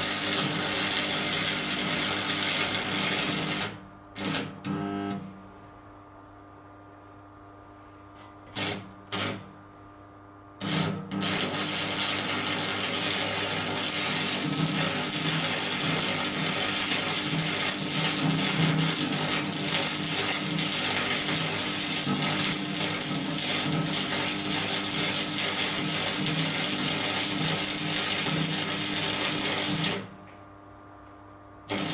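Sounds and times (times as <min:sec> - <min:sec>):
welding arc crackling: 0:00.0 - 0:04.7, 0:08.5 - 0:09.4, 0:10.6 - 0:30.2, 0:31.7 - 0:31.9.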